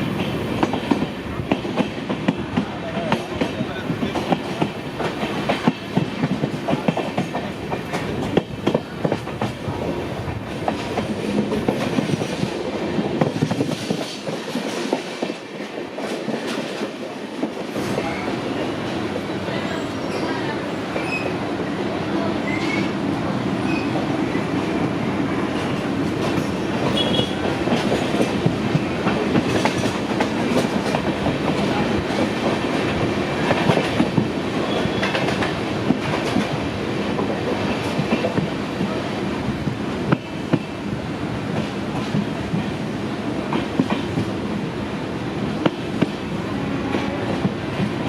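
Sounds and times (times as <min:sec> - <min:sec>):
train rumble: 0:00.0 - 0:48.0
train wheels clicking over rail joints: 0:00.1 - 0:09.6, 0:10.2 - 0:18.0, 0:25.5 - 0:39.0, 0:43.4 - 0:44.4.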